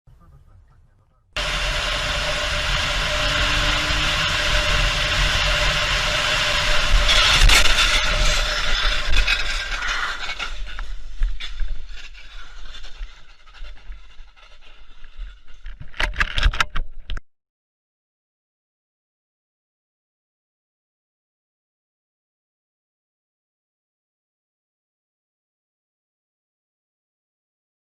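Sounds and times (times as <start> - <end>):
car road noise: 1.4 - 9.6
collision scraping and knocks: 1.4 - 16.8.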